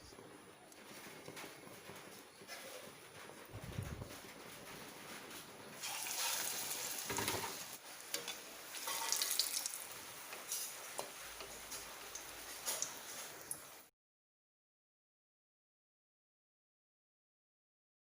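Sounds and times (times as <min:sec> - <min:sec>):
food sizzling in hot oil: 0:05.8 - 0:13.9.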